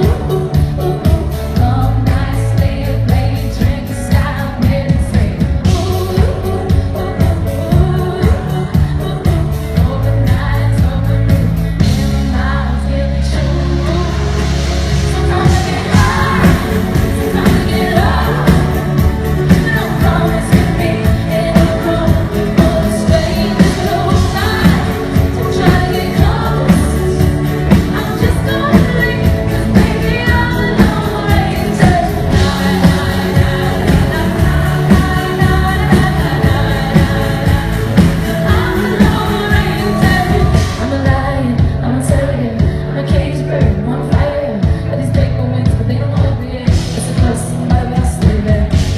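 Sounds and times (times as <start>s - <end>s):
live pop band: 0.0s - 48.9s
woman singing lead: 0.0s - 48.9s.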